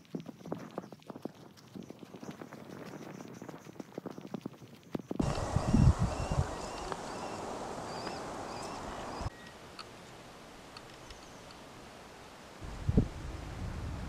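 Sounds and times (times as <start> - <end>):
wind buffeting microphone: 0.0 - 9.3, 12.6 - 14.0
small bird chirping: 5.2 - 9.6, 10.8 - 11.6
background hiss: 5.2 - 14.0.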